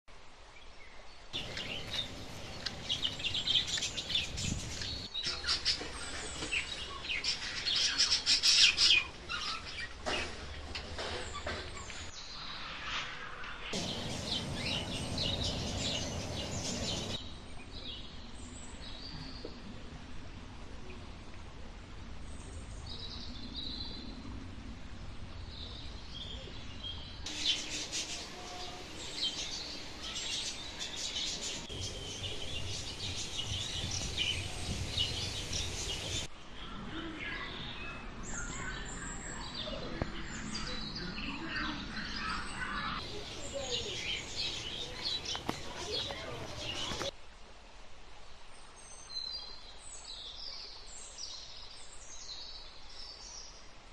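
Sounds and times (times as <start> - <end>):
small birds chirping: 0.8 - 19.6, 25.5 - 36.3, 37.0 - 47.2
low rumble: 13.8 - 17.2.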